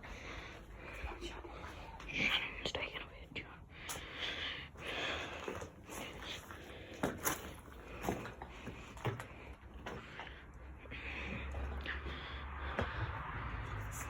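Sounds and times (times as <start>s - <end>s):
soft breathy rustling: 0.0s - 14.0s.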